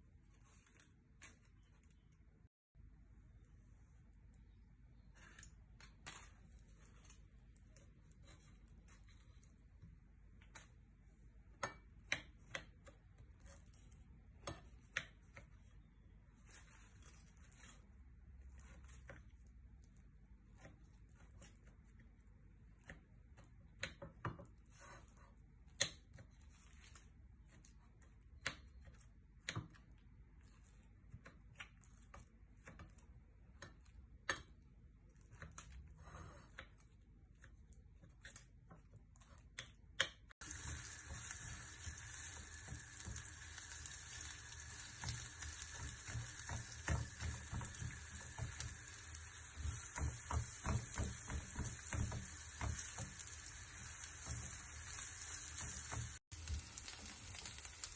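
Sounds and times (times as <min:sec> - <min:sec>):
food sizzling in a pan: 0:40.4 - 0:57.9
spoon knocking while stirring: 0:44.8 - 0:53.4.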